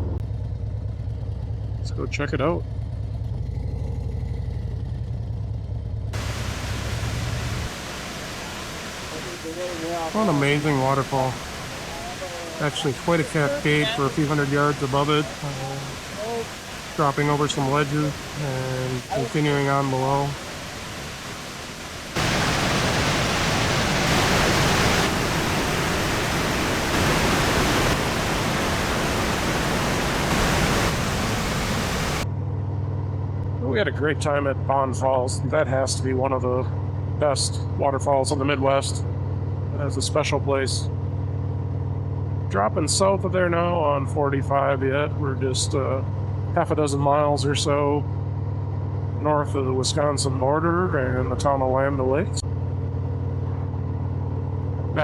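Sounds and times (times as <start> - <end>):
motorcycle engine deep rumble: 0.0 - 7.6
waterfall rushing: 6.2 - 32.2.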